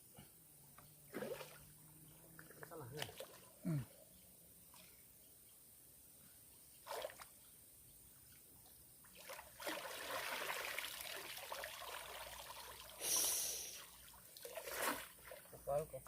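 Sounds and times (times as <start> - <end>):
water splashing and trickling: 1.0 - 5.4, 6.6 - 15.7
short loud hiss: 13.0 - 13.9.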